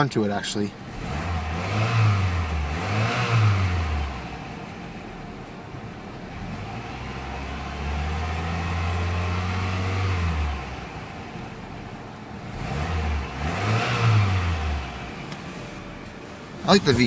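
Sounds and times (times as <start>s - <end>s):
car engine revving: 0.8s - 5.5s, 6.3s - 17.0s.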